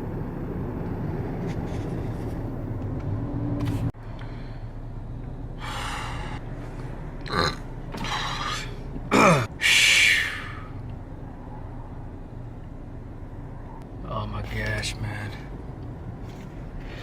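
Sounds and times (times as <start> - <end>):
man groaning: 7.3 - 10.6.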